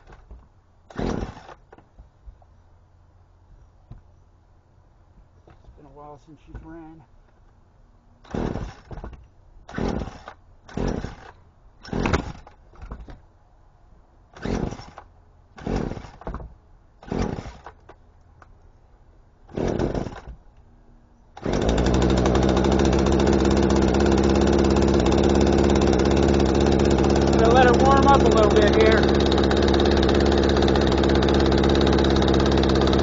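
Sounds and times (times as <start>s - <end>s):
chainsaw engine running: 0.9s - 1.6s, 9.7s - 12.4s, 14.4s - 15.0s, 17.0s - 17.8s, 19.5s - 20.3s, 21.4s - 33.0s.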